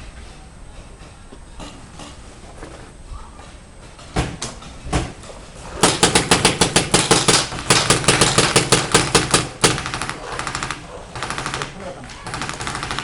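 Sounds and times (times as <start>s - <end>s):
paintball markers firing: 5.8s - 13.0s.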